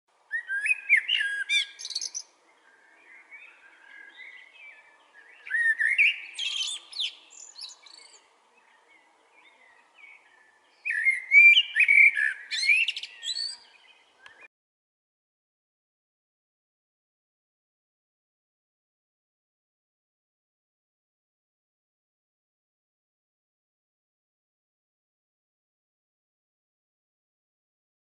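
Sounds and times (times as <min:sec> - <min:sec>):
quiet bird twittering: 0:00.3 - 0:14.5
small bird singing: 0:00.3 - 0:14.5.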